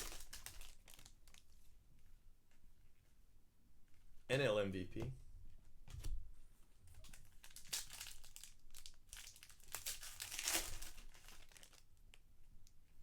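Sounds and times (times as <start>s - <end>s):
card pack wrappers tearing and crinkling: 0.0s - 1.4s, 7.0s - 11.9s.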